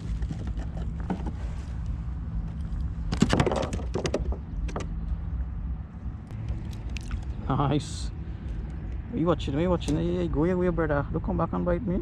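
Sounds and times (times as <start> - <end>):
knocks and clattering on kayak: 3.1 - 4.9.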